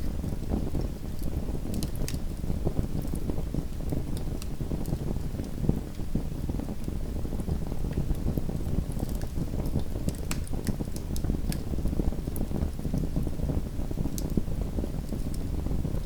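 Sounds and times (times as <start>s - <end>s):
wood crackling and popping: 7.8s - 13.2s.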